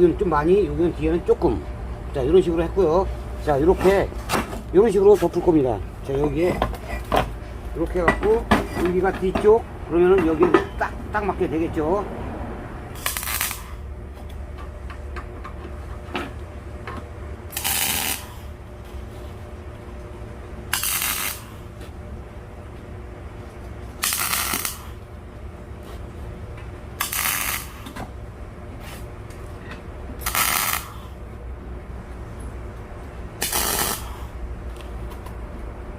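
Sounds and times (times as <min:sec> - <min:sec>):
steady low hum: 0:00.0 - 0:35.9
arc welding crackle: 0:12.9 - 0:13.9, 0:17.5 - 0:19.3, 0:20.6 - 0:22.0, 0:23.5 - 0:25.1, 0:26.9 - 0:28.0, 0:30.2 - 0:31.2, 0:33.4 - 0:34.9.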